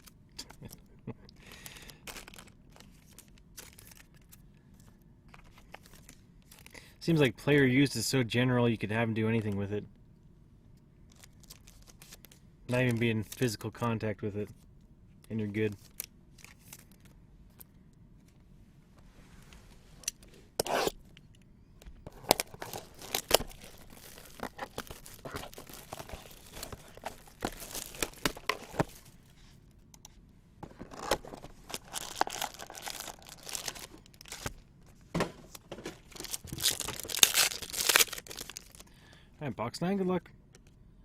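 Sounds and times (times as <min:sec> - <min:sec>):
packaging torn and crinkled: 0:01.6 - 0:04.4, 0:11.1 - 0:13.4, 0:15.8 - 0:17.1, 0:22.1 - 0:29.0, 0:30.9 - 0:34.6, 0:36.0 - 0:38.9.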